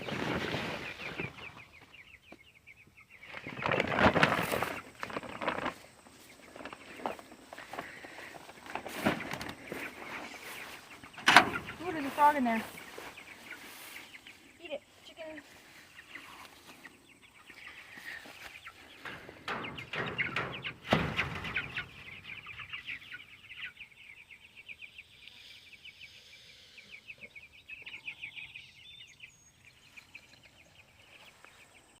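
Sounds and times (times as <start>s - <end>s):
rustling: 0.0s - 1.9s, 3.2s - 16.9s
chicks peeping: 0.0s - 32.0s.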